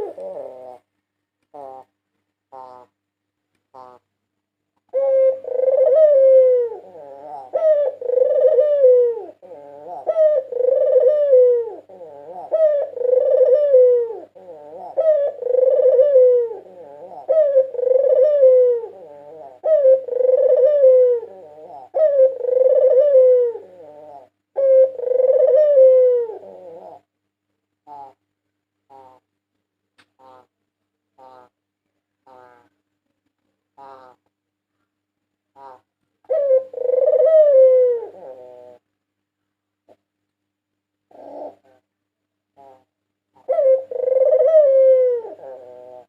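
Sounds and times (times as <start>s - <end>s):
dove cooing: 0.0s - 0.9s, 1.5s - 3.0s, 3.7s - 4.0s, 4.9s - 27.1s, 27.8s - 28.2s, 28.9s - 29.3s, 32.2s - 32.8s, 33.8s - 34.3s, 35.5s - 38.9s, 41.1s - 41.9s, 42.6s - 46.0s
faint steady hum: 0.0s - 46.0s.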